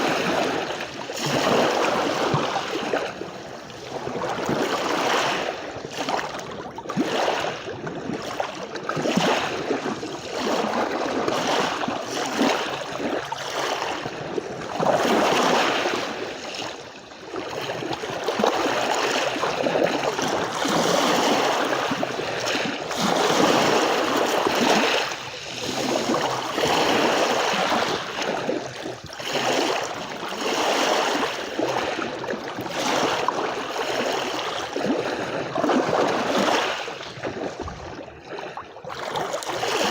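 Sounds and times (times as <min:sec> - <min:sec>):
sea waves washing onto beach: 0:38.9 - 0:39.9.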